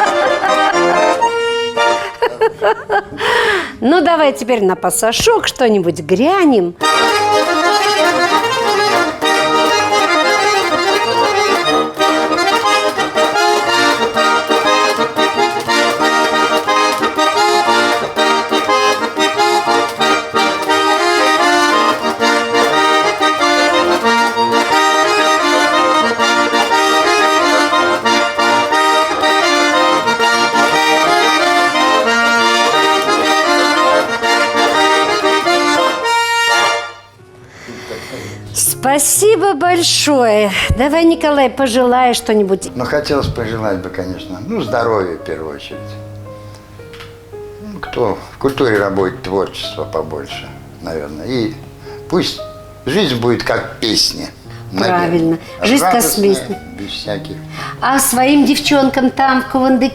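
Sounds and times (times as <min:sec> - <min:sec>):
button accordion playing lively tune: 0:00.0 - 0:02.6, 0:06.8 - 0:37.2, 0:50.8 - 0:59.9.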